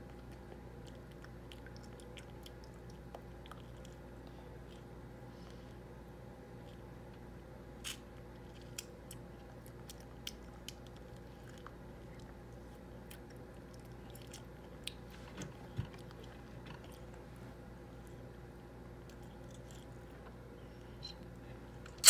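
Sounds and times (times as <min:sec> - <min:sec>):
toddler chewing orange slices: 0:06.6 - 0:20.3.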